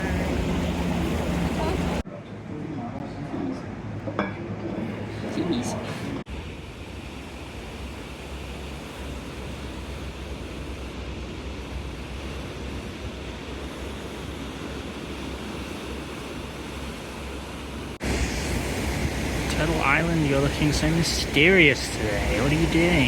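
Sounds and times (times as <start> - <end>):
rushing wind: 18.0 - 23.0.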